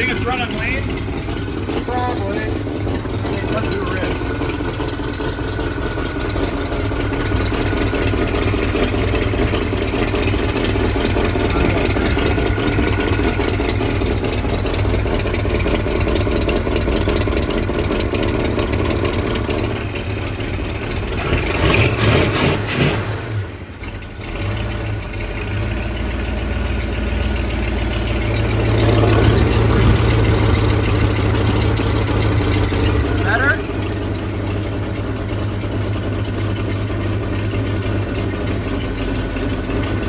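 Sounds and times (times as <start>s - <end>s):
car engine running rough: 0.0s - 40.0s.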